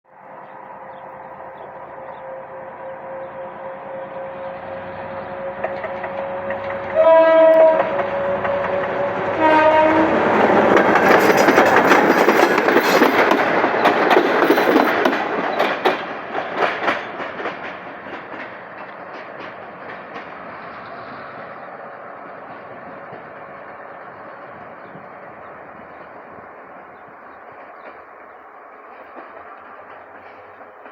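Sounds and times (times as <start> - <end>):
locomotive horn blasts: 5.2 - 10.3
train wheels clattering: 5.6 - 21.0, 27.3 - 30.9.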